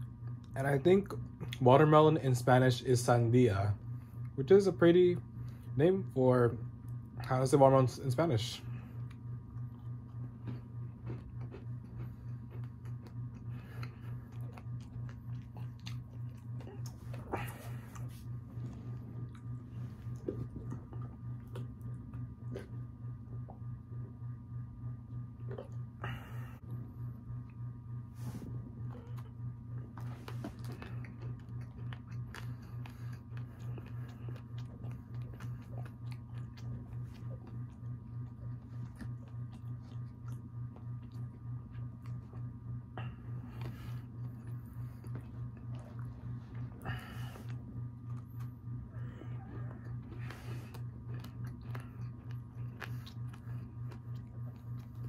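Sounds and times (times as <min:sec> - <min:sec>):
chewing crunchy cookie: 0:00.0 - 0:55.0
pulsing low hum: 0:00.0 - 0:55.0
cookie crunching: 0:28.9 - 0:55.0.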